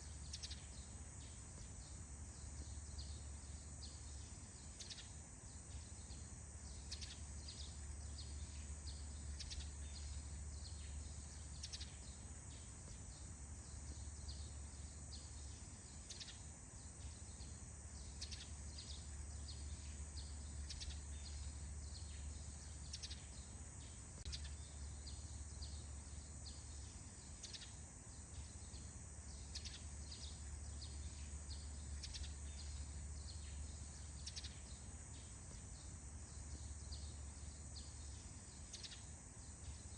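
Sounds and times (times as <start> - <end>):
birds chirping: 0.0 - 39.9
low constant rumble: 0.0 - 39.9.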